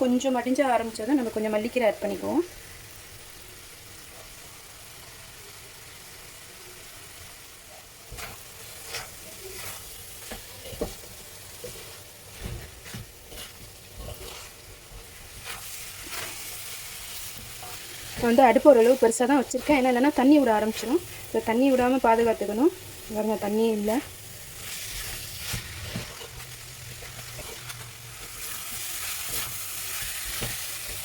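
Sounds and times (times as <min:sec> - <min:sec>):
filling sizzling in a pan: 0:00.0 - 0:31.0
spatula stirring and scraping: 0:07.7 - 0:31.0.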